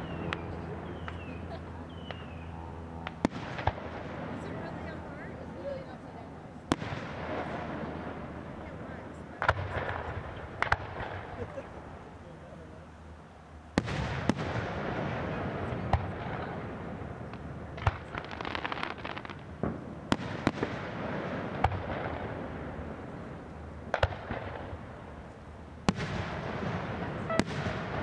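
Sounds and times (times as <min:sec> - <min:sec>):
firework crackling: 0:13.8 - 0:25.2.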